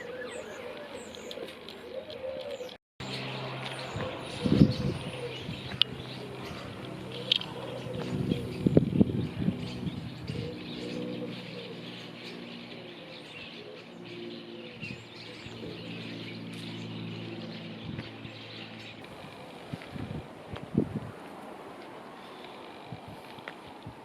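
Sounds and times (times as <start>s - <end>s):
pigeon cooing: 0.0s - 2.8s, 3.8s - 9.0s, 10.1s - 16.1s
small birds chirping: 0.0s - 20.8s, 22.0s - 24.0s.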